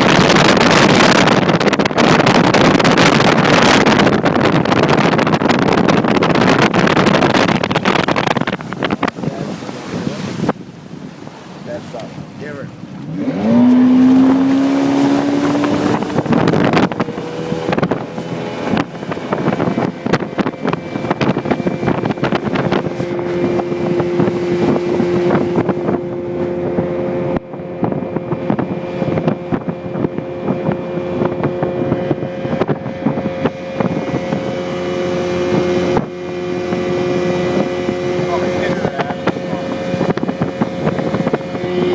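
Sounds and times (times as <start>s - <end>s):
speedboat motor: 0.0s - 41.9s
wind noise: 0.0s - 41.9s.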